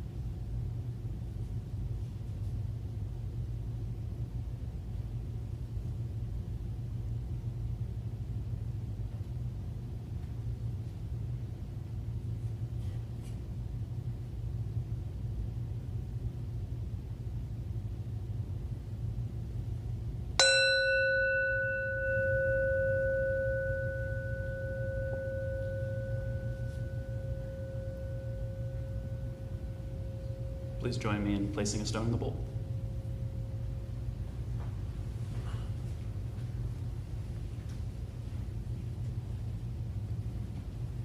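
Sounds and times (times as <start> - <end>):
steady low rumble: 0.0 - 41.0
singing bowl ringing: 20.4 - 34.2.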